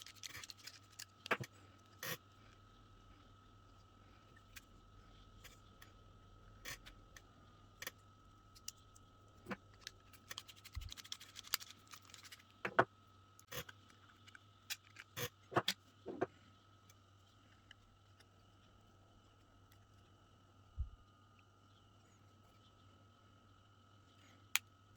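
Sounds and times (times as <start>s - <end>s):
small parts clicking and tapping: 0.0s - 2.2s, 6.6s - 16.2s
faint steady whine: 0.0s - 24.9s.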